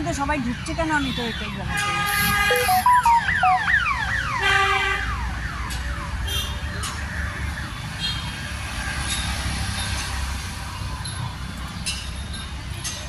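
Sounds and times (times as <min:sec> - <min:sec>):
electronic siren-like signal: 0:02.5 - 0:04.4.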